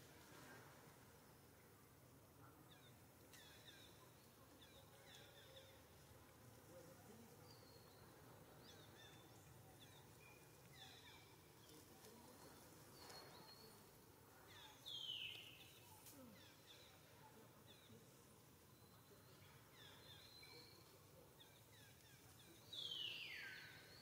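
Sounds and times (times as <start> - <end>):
faint bird chirps: 7.3 - 24.0.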